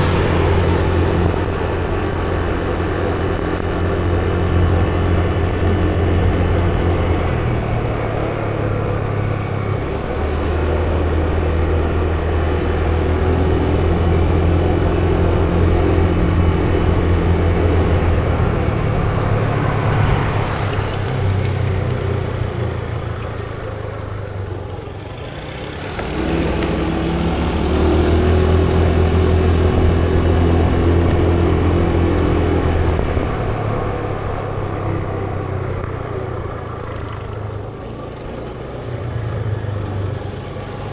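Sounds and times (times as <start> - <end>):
road and wind noise: 0.0 - 40.9
vehicle engine humming: 0.0 - 40.9.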